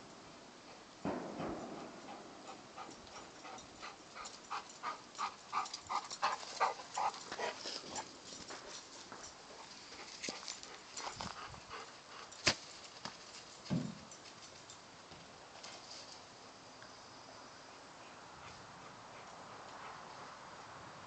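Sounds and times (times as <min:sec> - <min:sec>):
dog panting: 0:02.0 - 0:08.7, 0:09.5 - 0:12.4, 0:18.4 - 0:20.4.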